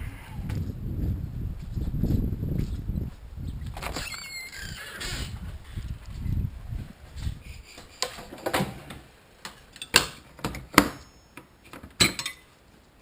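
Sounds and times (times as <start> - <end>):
metal hand tools clinking: 12.0 - 12.5.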